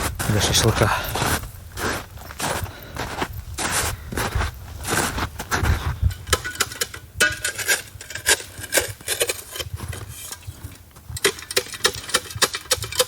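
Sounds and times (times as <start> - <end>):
camping gear clicking and knocking: 5.6 - 13.0.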